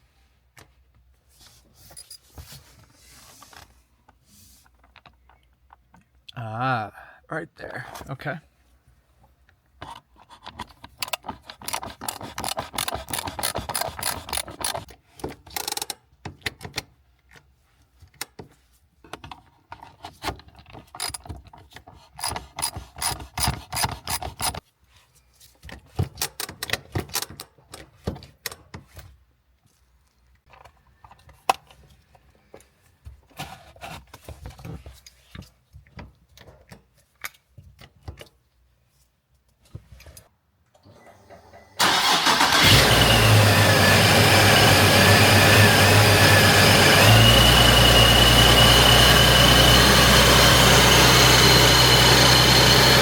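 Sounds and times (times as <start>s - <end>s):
ratchet wrench clicking: 11.0s - 14.8s.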